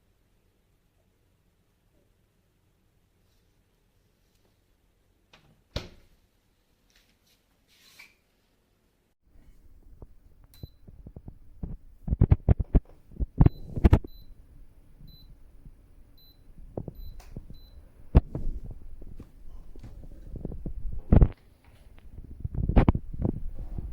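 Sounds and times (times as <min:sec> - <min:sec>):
knocks and thumps of handling: 0:10.8 - 0:14.2, 0:18.2 - 0:23.9.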